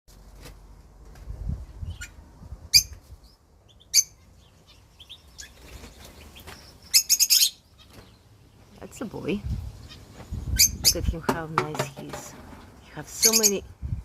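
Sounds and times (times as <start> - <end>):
parrots calling: 3.8 - 5.6, 6.7 - 8.1, 13.1 - 13.6.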